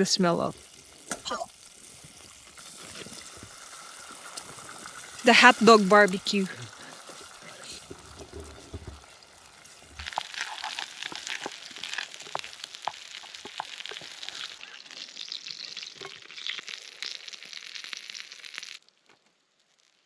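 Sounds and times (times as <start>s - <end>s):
food sizzling with popping fat: 0.0s - 20.0s.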